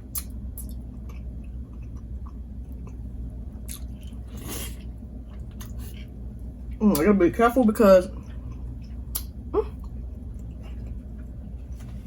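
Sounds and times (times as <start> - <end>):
chewing with wet mouth smacks: 0.1 - 6.2, 8.1 - 11.6.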